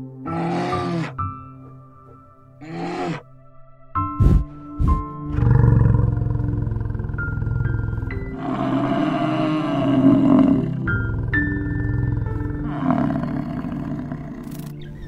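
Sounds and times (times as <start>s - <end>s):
large animal bellowing: 0.2s - 1.3s, 2.6s - 3.3s, 5.3s - 14.5s
soft mallet music: 1.2s - 15.0s.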